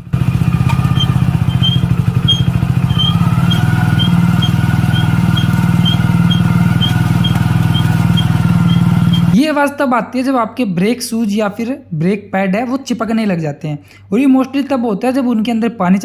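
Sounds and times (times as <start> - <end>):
motorcycle engine running: 0.0 - 9.4
brake squeak: 0.3 - 9.4.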